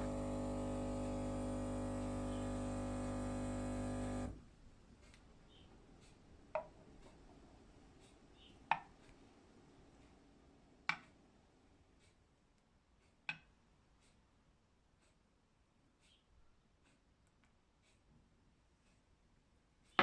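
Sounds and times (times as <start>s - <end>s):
espresso machine pump humming: 0.0s - 4.4s.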